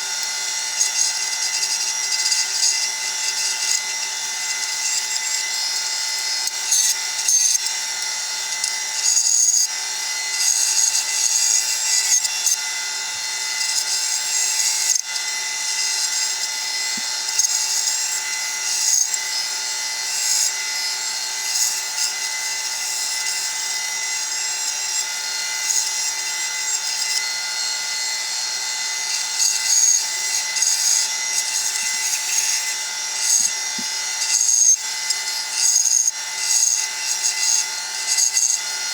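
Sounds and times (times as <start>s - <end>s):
bandsaw cutting wood: 0.0s - 38.9s.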